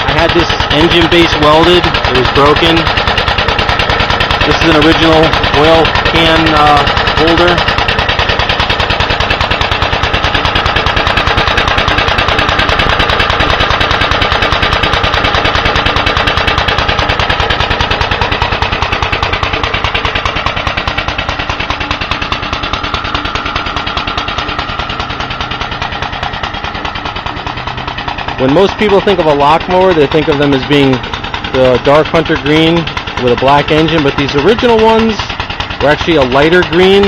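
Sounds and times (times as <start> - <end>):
mower engine running: 0.0 - 37.0.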